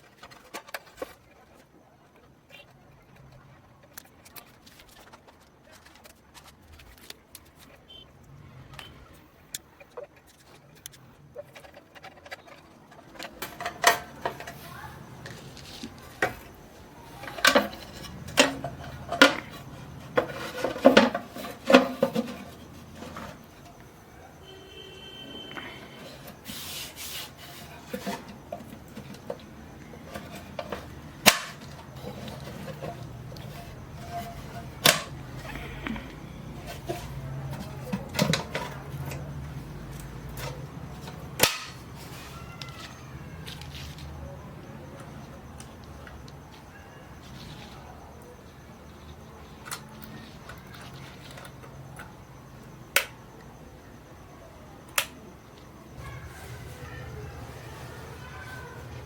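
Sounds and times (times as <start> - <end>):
hard parts clinking and knocking: 9.8 - 24.0, 27.5 - 47.7.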